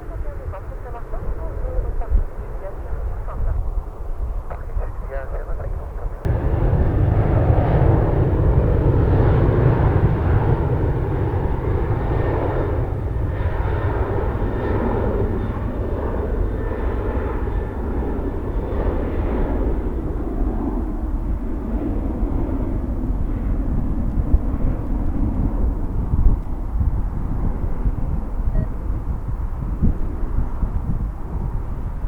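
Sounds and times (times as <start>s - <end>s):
jet engines at take-off thrust: 0.0s - 32.0s.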